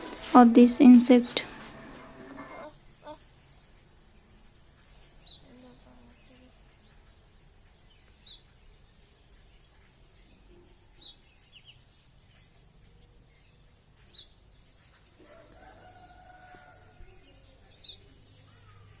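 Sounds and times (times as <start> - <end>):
high-pitched insect drone: 0.0 - 7.9.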